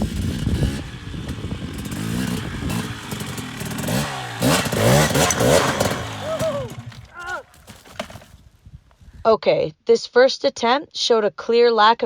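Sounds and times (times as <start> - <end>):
dirt bike engine revving: 0.0 - 7.1.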